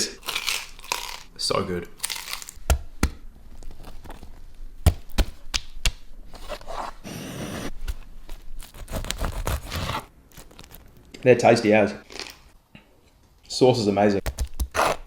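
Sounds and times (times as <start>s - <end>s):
knife sawing through crusty bread: 8.8s - 10.1s.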